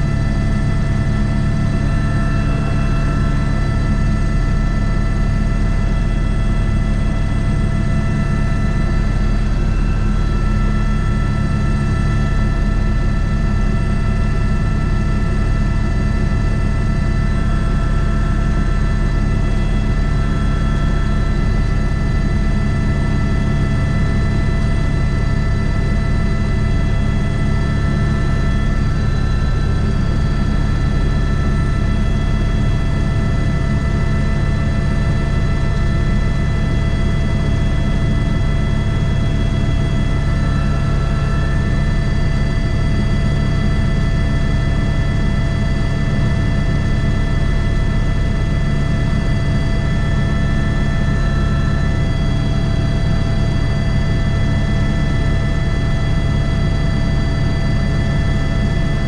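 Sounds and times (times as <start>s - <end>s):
helicopter rotor rumble: 0.0s - 59.0s
helicopter turbine whine: 0.0s - 59.0s.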